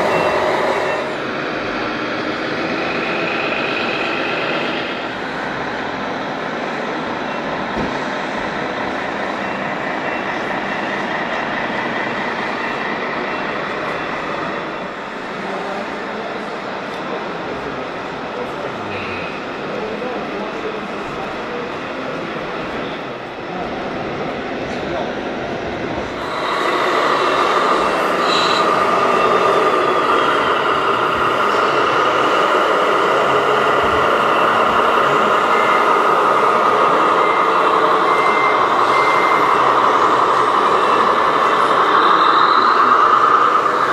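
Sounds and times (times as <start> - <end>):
high squeal: 0.0 - 1.2, 26.1 - 43.9
vehicle running: 26.0 - 43.9
faint high whine: 26.1 - 32.0
toy truck motor running: 26.2 - 33.5.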